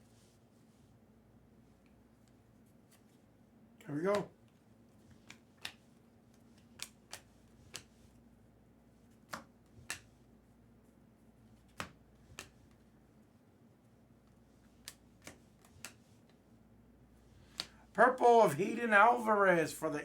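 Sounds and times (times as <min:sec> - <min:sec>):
cards flicked and snapped down: 0:05.1 - 0:08.0, 0:09.1 - 0:10.2, 0:11.6 - 0:12.8, 0:14.6 - 0:16.0, 0:17.4 - 0:17.8.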